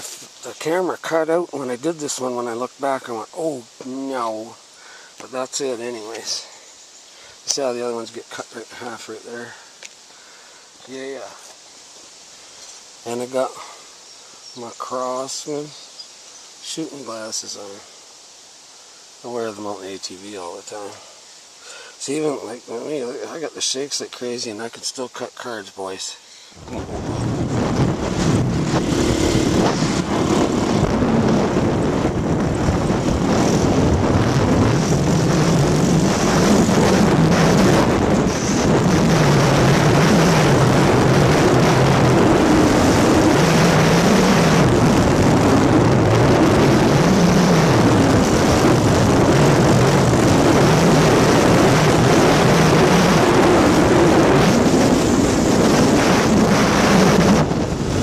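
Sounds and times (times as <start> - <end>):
atv engine revving: 26.6 - 58.0.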